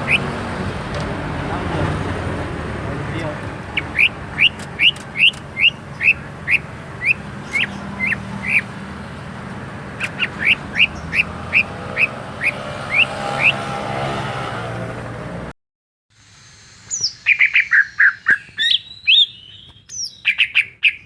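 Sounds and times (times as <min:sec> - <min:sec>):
bird whistling rising notes: 0:16.6 - 0:20.4.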